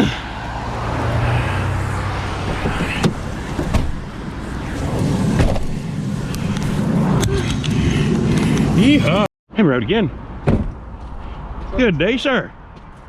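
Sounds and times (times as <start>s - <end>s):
road hum: 0.0s - 9.3s
pickup truck engine running: 0.6s - 6.9s.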